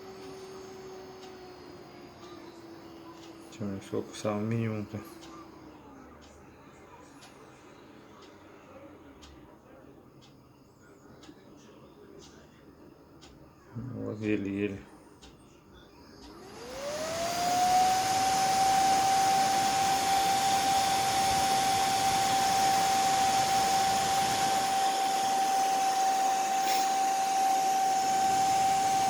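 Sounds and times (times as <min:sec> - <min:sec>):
fan motor whining: 0:00.0 - 0:09.5, 0:11.1 - 0:29.0
air blowing: 0:17.0 - 0:29.0.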